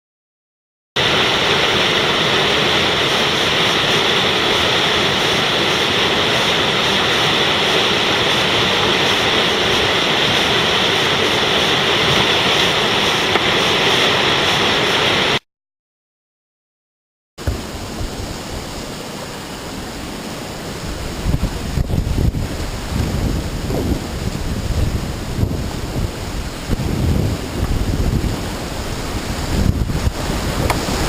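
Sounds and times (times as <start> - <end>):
whitewater roaring: 1.0 - 15.4, 17.4 - 31.0.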